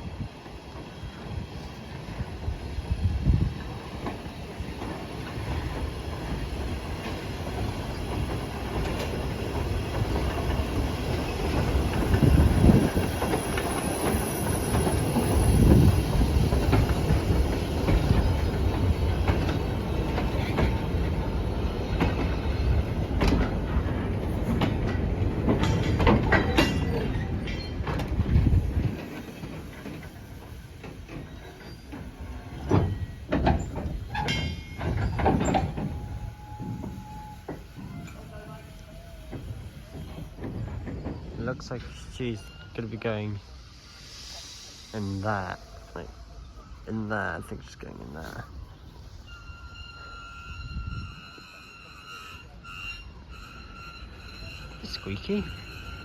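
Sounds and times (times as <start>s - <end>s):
steam locomotive rumble: 0.0s - 56.0s
wheels clanking over rail joints: 3.2s - 43.0s.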